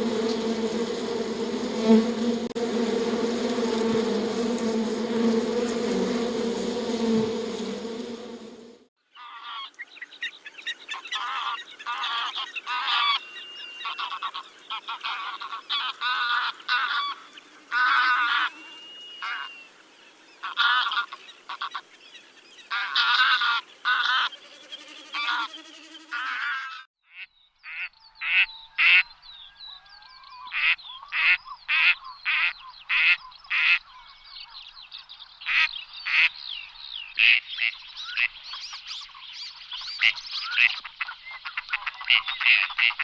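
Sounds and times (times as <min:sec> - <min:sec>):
steady buzz: 0:00.0 - 0:08.8
birds calling: 0:09.1 - 0:43.0.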